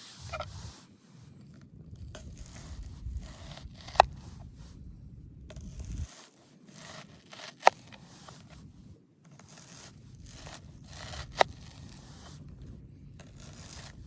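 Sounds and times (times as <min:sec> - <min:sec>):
scraping and rustling of hands: 0:00.0 - 0:04.8
low rumble: 0:00.1 - 0:06.1.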